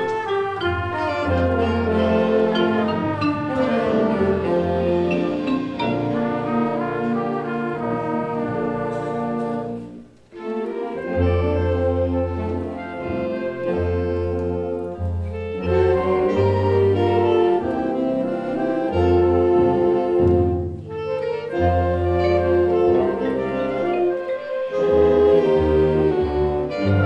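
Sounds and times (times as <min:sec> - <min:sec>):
concert band playing: 0:00.0 - 0:09.8.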